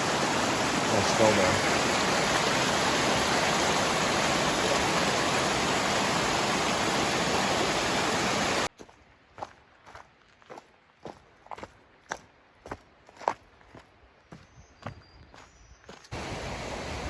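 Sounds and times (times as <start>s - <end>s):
mountain stream rushing: 0.0s - 8.7s, 16.1s - 17.0s.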